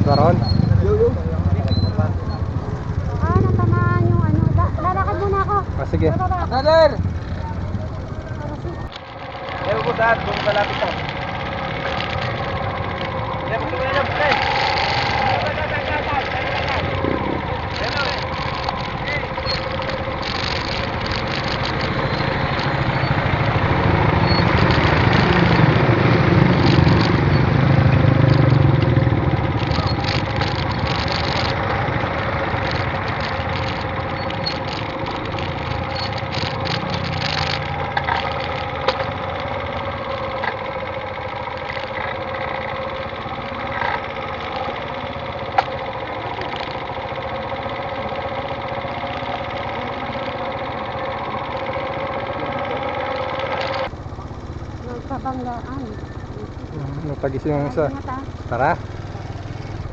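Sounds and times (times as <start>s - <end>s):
sharp clicks: 0.0s - 3.6s, 6.5s - 59.9s
deeper engine rumble: 0.0s - 59.9s
motorcycle engine idling: 0.0s - 59.9s.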